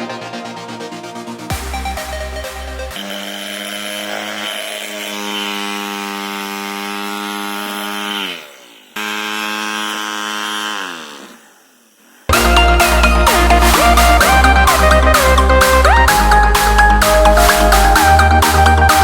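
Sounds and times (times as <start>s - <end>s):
toy motor fan whining: 2.9s - 13.4s.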